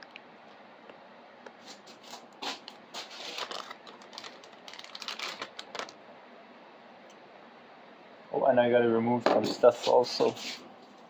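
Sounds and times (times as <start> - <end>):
plastic packaging crinkling: 1.8 - 6.0.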